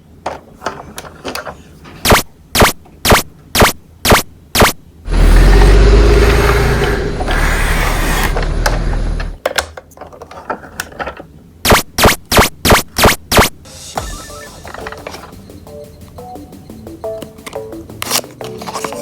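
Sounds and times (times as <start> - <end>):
loud deep rumble: 5.1 - 9.4.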